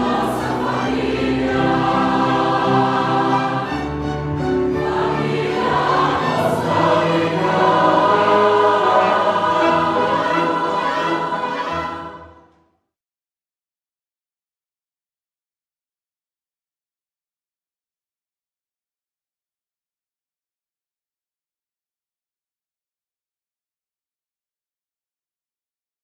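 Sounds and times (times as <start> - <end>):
choir singing a hymn: 0.0 - 12.6
instrumental accompaniment: 0.0 - 12.6.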